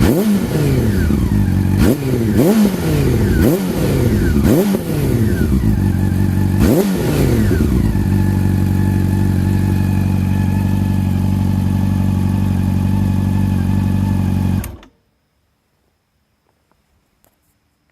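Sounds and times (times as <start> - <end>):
motorcycle engine revving and idling: 0.0 - 14.8.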